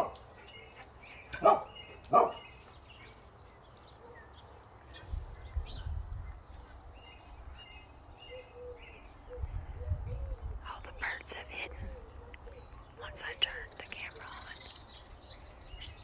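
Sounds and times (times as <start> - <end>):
dog bark: 0.0 - 0.2, 1.3 - 2.5
low rumble of passing traffic: 0.0 - 16.0
songbirds chirping: 0.0 - 16.0.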